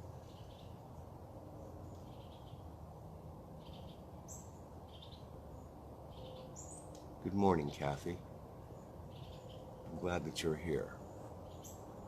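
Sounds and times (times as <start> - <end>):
faint bird chirps: 0.0 - 1.0, 1.6 - 2.7, 3.6 - 7.0, 8.7 - 12.0.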